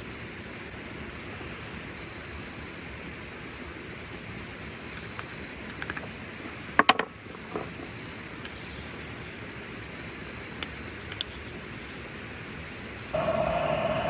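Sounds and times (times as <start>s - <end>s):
vehicle running noise: 13.2s - 14.0s.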